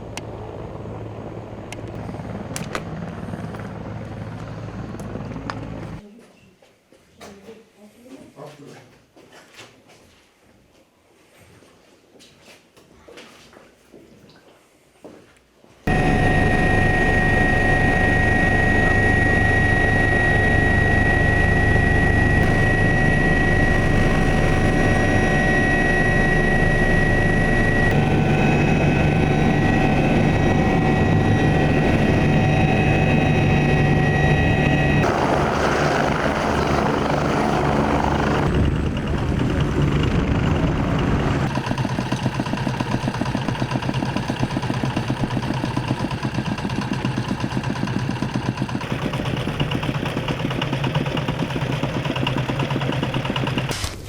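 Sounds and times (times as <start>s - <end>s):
helicopter turbine whine: 0.0s - 6.0s, 15.9s - 53.7s
rotor and engine rumble: 0.0s - 6.0s, 15.9s - 53.7s
rotor blades pulsing: 15.9s - 53.7s.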